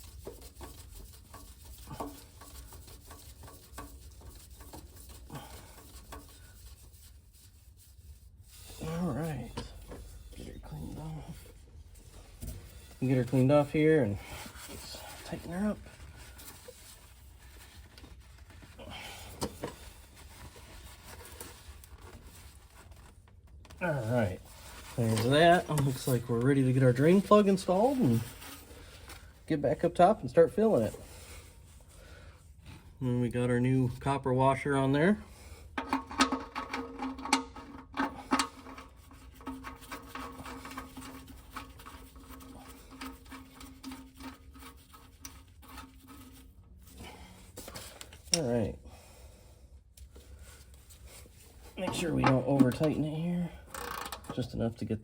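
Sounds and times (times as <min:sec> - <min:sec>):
drain plug clicking and rubbing: 0:00.0 - 0:07.5, 0:19.3 - 0:22.3, 0:35.7 - 0:46.6, 0:51.6 - 0:53.0, 0:53.7 - 0:54.5
hands rubbing oil filter: 0:00.0 - 0:29.5, 0:35.3 - 0:48.6, 0:50.0 - 0:53.1.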